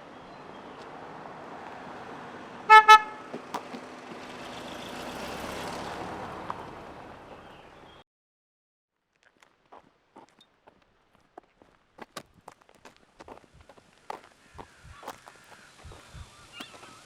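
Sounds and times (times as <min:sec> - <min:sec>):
vehicle driving past: 0:00.5 - 0:08.0
vehicle horn toots: 0:02.7 - 0:03.5.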